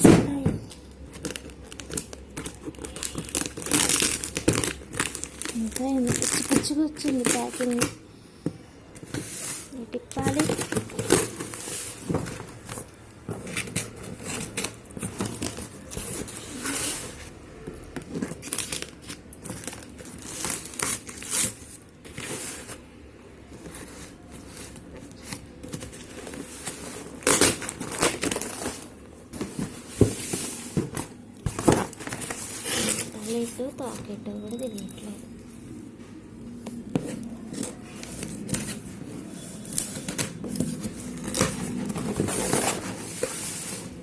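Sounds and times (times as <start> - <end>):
packaging crumpled and torn: 0.7 - 8.0, 18.1 - 22.9, 23.5 - 29.0.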